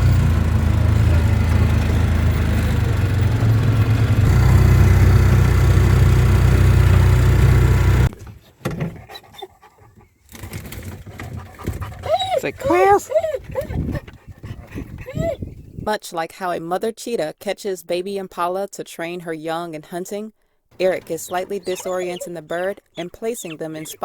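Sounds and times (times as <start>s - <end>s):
motor running with low rumble: 0.0s - 8.2s.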